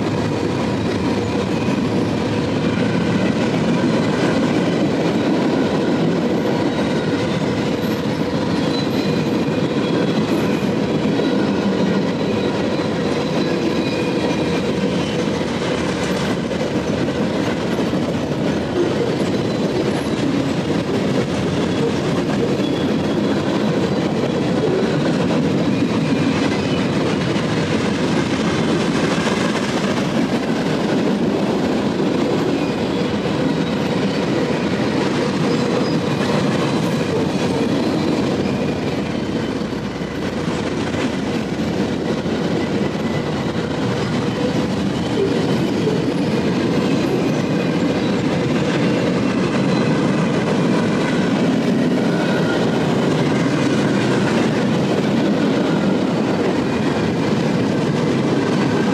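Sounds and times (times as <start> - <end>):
freight train wheels rumbling: 0.0 - 58.9.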